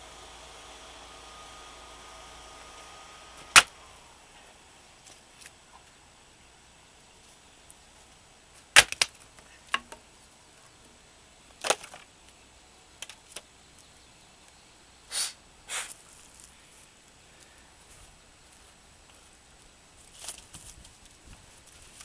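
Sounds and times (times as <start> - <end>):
axe striking firewood: 3.3 - 3.8, 8.8 - 10.0.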